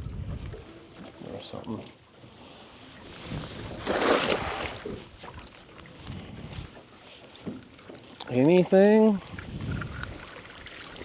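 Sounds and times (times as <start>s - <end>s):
faint water and handling sounds: 0.0s - 11.0s
cast net splashing in water: 3.7s - 5.4s.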